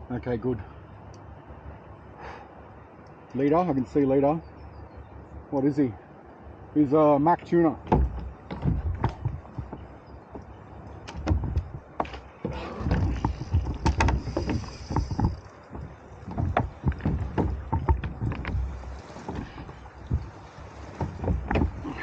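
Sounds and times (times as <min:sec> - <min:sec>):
knocks on plastic kayak hull: 0:07.9 - 0:09.8, 0:11.1 - 0:22.0
water splashing: 0:07.9 - 0:22.0.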